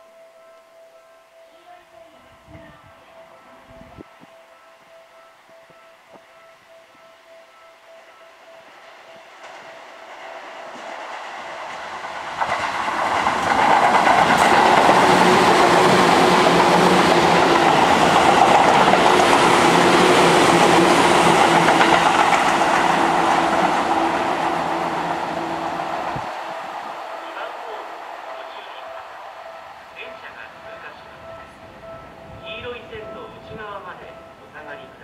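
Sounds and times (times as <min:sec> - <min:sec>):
electric train passing: 0:00.0 - 0:35.0
wheels clattering over rail joints: 0:09.4 - 0:25.7.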